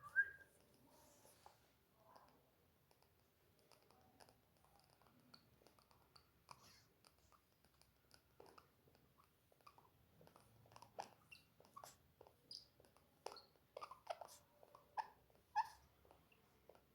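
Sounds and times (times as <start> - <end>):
parrot squeaking softly: 10.7 - 16.8.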